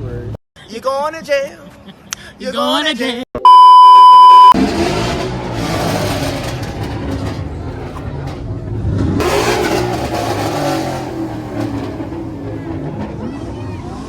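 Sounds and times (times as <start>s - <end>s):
car engine revving: 4.4s - 14.0s
crowd voices: 5.1s - 14.0s.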